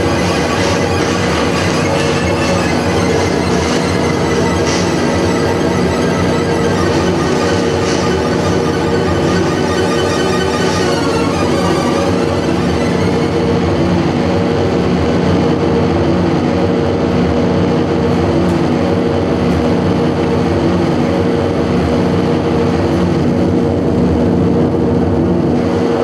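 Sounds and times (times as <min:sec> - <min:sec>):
experimental noise music drone: 0:00.0 - 0:14.9.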